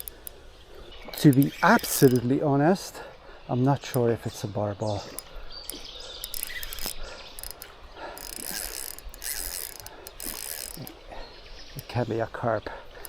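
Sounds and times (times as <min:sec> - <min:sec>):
fishing reel drag clicking: 0:00.0 - 0:02.4, 0:03.8 - 0:11.1.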